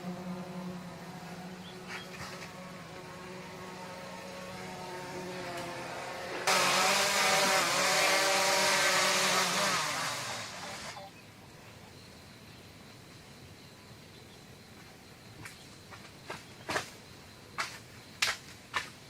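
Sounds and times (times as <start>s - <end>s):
motor humming: 0.0s - 11.0s
loud wavering engine-like noise: 0.0s - 11.1s.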